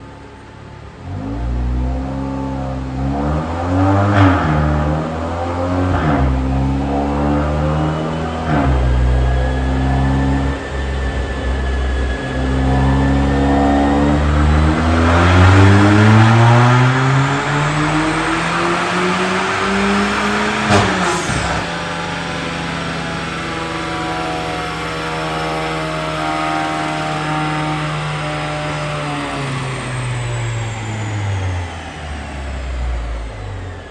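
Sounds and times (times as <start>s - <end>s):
car engine revving: 0.6s - 33.9s
exhaust pop: 15.0s - 22.2s.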